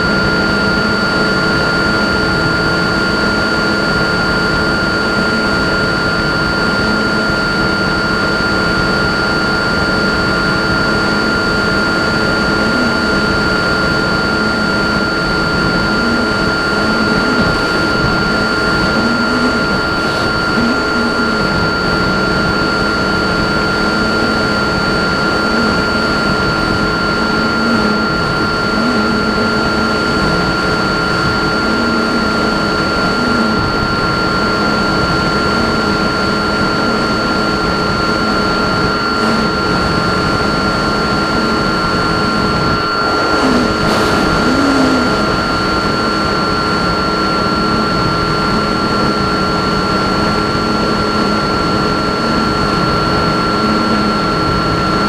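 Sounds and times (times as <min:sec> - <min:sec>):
propeller and motor drone: 0:00.0 - 0:55.0
rush of air: 0:42.8 - 0:46.2.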